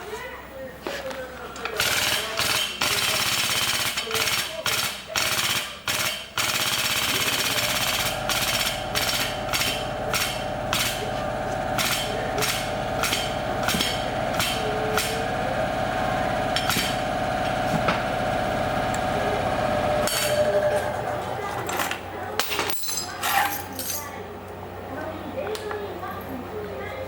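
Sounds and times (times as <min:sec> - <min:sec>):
machine hum: 0:01.6 - 0:22.2.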